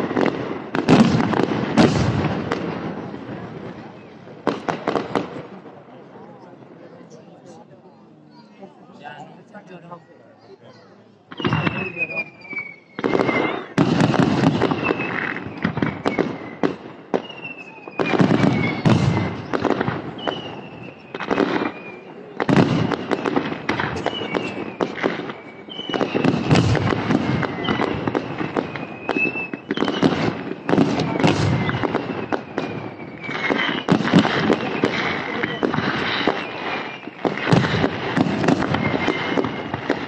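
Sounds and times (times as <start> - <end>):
fireworks whistles: 0.0 - 5.4, 11.3 - 40.0
fireworks bangs and crackling: 0.0 - 8.1, 11.1 - 40.0.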